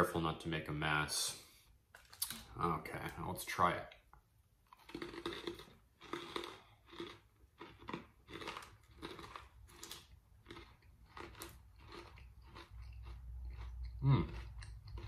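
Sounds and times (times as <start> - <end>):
person chewing crunchy snack: 4.6 - 15.0.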